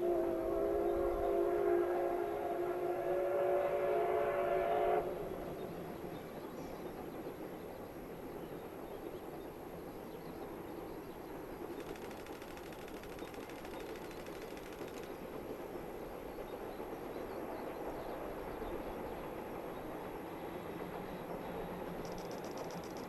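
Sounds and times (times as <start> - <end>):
train rumbling: 0.0 - 23.0
fast even clicking: 11.7 - 15.2, 22.0 - 23.0.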